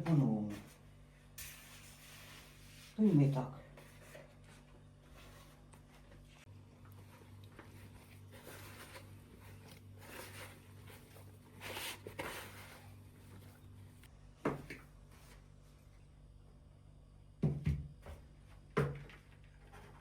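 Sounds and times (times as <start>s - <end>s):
handling and rustling noises: 0.0s - 15.8s.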